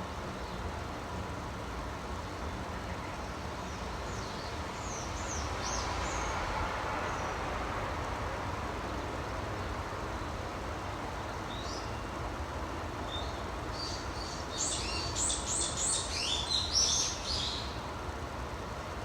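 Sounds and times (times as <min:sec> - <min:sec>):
small birds chirping: 0:13.0 - 0:17.9.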